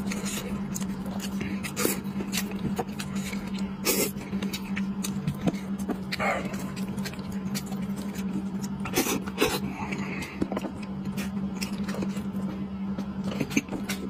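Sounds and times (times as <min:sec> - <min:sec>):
chewing and tearing food: 0:00.0 - 0:14.0
low hum: 0:00.0 - 0:14.0.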